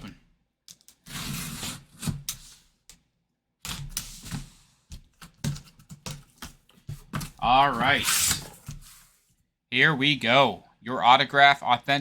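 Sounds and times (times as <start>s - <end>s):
cardboard scraping and rustling: 5.6s - 9.2s.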